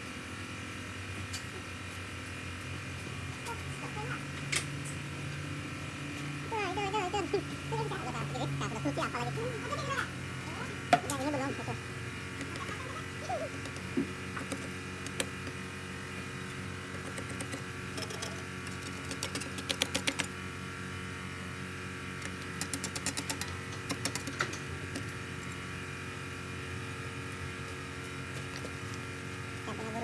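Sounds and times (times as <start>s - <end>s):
steady machine hum: 0.0s - 30.0s
rapid tool clicking: 16.9s - 20.4s, 22.2s - 24.6s.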